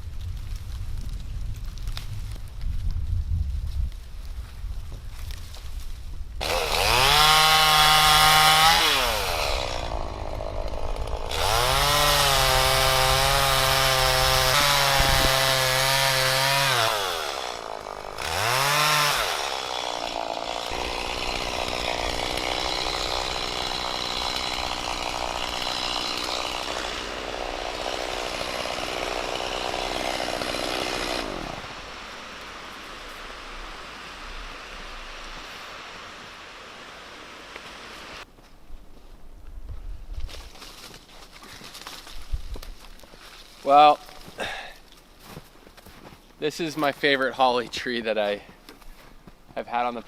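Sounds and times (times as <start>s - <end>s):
chainsaw revving: 6.4s - 35.4s.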